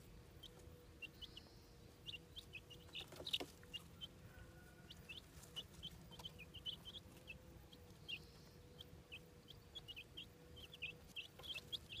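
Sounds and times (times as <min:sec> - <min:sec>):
chicks peeping: 0:00.0 - 0:12.0
faint steady hum: 0:00.0 - 0:12.0.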